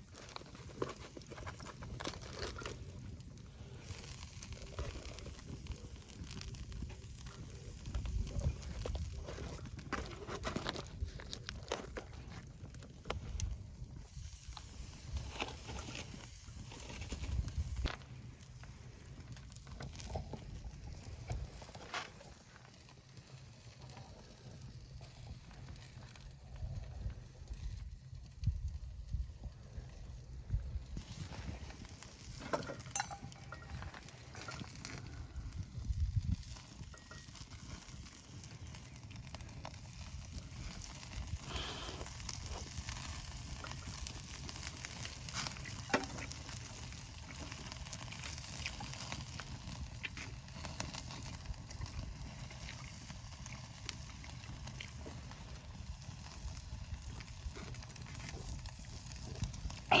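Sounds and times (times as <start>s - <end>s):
fire crackles: 0.0s - 60.0s
meat sizzling on a grill: 2.5s - 10.0s, 30.1s - 60.0s.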